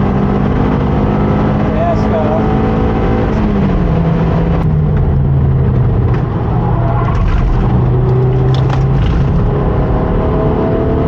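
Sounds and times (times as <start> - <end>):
rotary engine running hard: 5.2 - 10.9
light rattles and clicks: 7.0 - 9.6.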